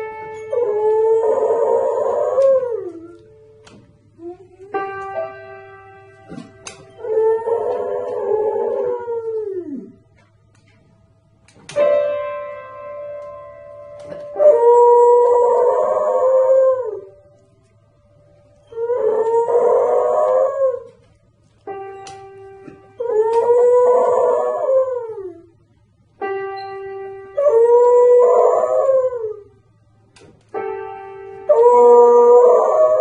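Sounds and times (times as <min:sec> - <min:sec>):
dog howling: 0:00.5 - 0:03.2, 0:07.0 - 0:10.0, 0:14.4 - 0:17.2, 0:18.7 - 0:21.0, 0:23.0 - 0:25.5, 0:27.4 - 0:29.5, 0:31.5 - 0:33.0.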